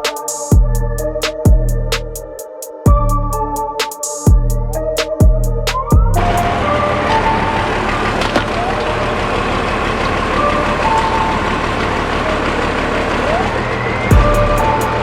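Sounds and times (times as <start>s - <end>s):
diesel truck engine running: 6.0s - 15.0s.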